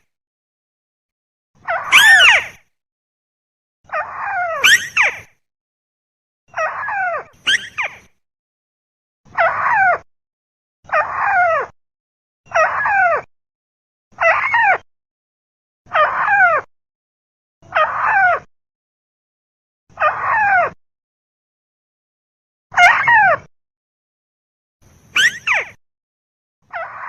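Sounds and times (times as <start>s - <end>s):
crake calls: 25.2s - 25.7s.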